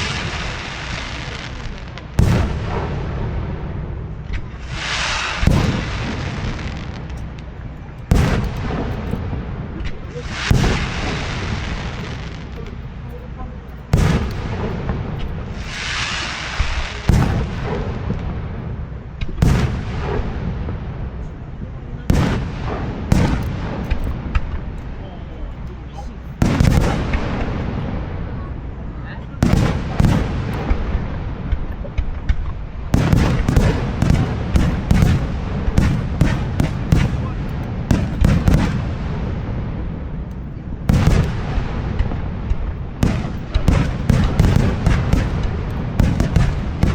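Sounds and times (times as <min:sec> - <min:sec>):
fireworks booming: 0:00.0 - 0:46.9
fireworks rumbling: 0:00.0 - 0:46.9
rushing hiss: 0:04.6 - 0:07.0, 0:15.6 - 0:17.2.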